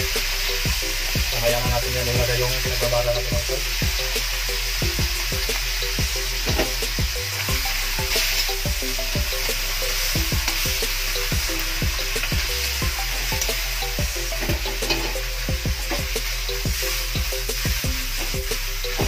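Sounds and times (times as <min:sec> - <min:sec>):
meat sizzling in a wok: 0:00.0 - 0:19.0
metal spatula scraping a pan: 0:14.3 - 0:17.1.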